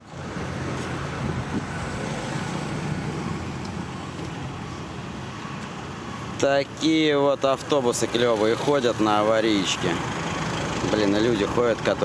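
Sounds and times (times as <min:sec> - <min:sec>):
street traffic: 0:00.0 - 0:12.0
bus engine idling: 0:02.6 - 0:12.0.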